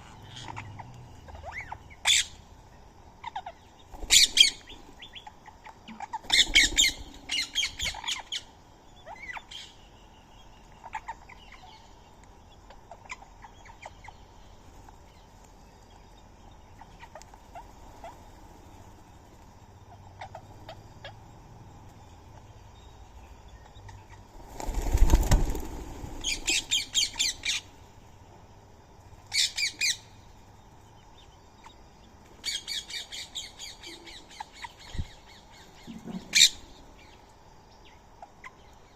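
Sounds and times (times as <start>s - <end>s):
bird wingbeats: 6.2s - 8.0s, 24.3s - 27.1s
birds squawking: 24.6s - 27.7s.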